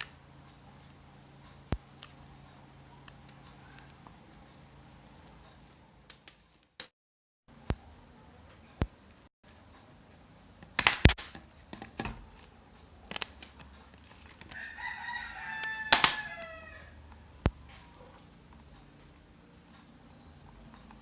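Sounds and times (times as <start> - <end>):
rooster crowing: 14.5 - 17.3.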